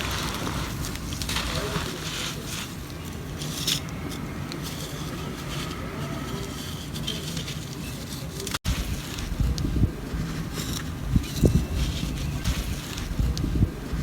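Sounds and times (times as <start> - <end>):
dry mud crumbling: 0.0 - 4.0
short crackles: 0.0 - 4.1
steady low rumble: 8.7 - 14.0.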